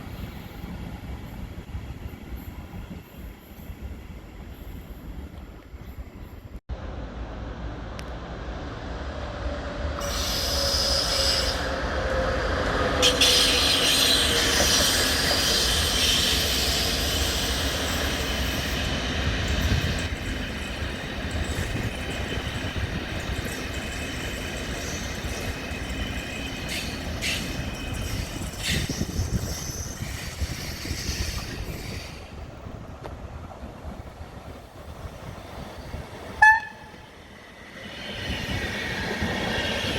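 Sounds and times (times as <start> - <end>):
train rumbling on rails: 0.0 - 39.9
train wheels squealing: 9.4 - 32.5.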